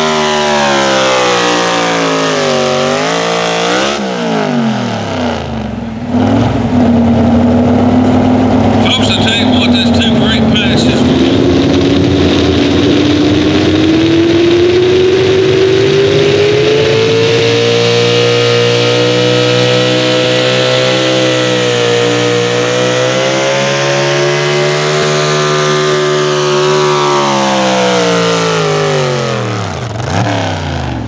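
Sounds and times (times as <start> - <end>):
engine at full throttle: 0.0 - 31.0.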